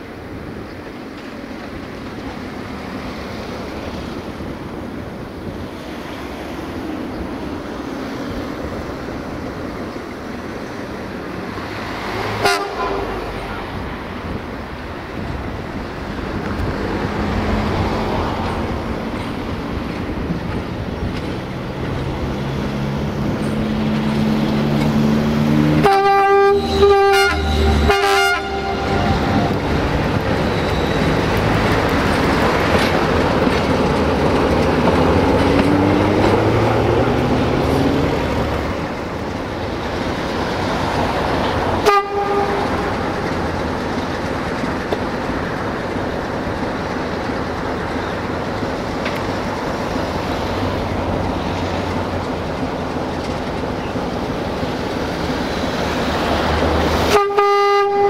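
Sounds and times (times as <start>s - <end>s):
diesel train engine rumble: 0.0s - 58.0s
train horn blasts: 12.3s - 13.8s, 25.7s - 30.0s, 41.8s - 43.2s, 57.0s - 58.0s.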